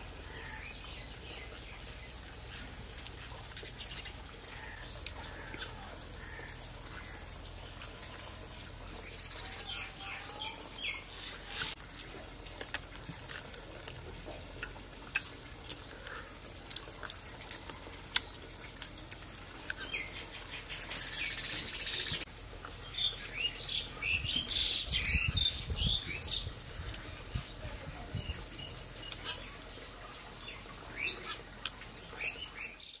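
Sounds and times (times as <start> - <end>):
small birds chirping: 0.0 - 11.8, 14.6 - 33.0.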